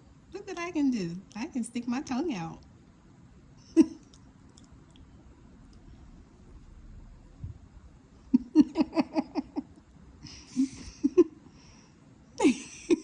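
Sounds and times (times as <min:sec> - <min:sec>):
person laughing: 0:03.7 - 0:04.1, 0:08.3 - 0:09.8, 0:10.4 - 0:11.4, 0:12.4 - 0:13.0.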